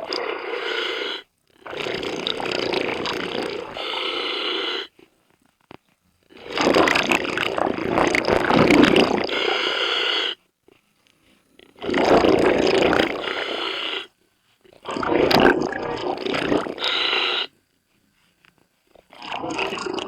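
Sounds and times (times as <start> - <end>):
diver breathing through regulator: 0.0 - 5.0, 8.6 - 10.4, 11.8 - 14.2, 14.8 - 17.6
exhaled bubbles rushing: 1.7 - 3.8, 6.4 - 9.3, 11.8 - 13.4, 14.8 - 17.0, 19.1 - 20.0.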